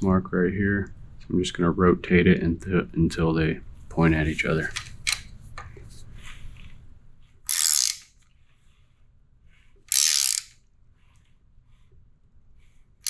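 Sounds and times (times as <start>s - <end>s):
ratchet wrench clicking: 7.5s - 8.2s, 9.9s - 10.6s.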